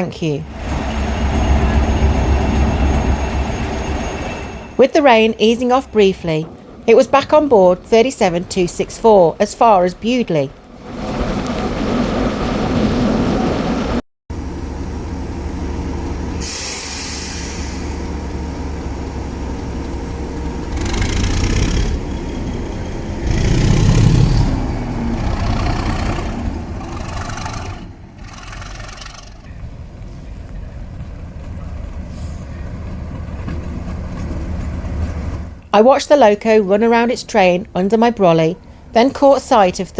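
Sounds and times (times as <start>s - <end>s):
diesel locomotive engine running: 0.0s - 39.9s
air hissing: 16.4s - 18.1s.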